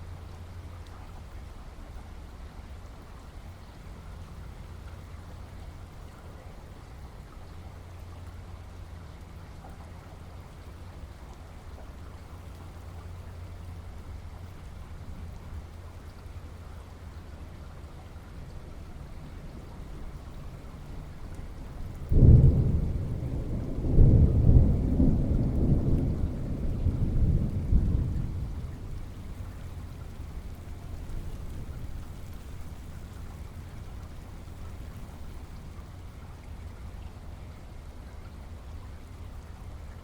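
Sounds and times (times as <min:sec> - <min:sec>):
steady rain: 0:00.0 - 0:40.0
thunder boom and rumble: 0:21.9 - 0:29.4.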